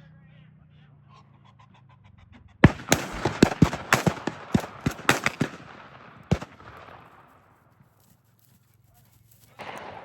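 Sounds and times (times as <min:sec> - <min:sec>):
gunshot echo: 0:02.6 - 0:07.4, 0:09.6 - 0:10.0
shotgun fire: 0:02.6 - 0:07.4, 0:09.6 - 0:10.0.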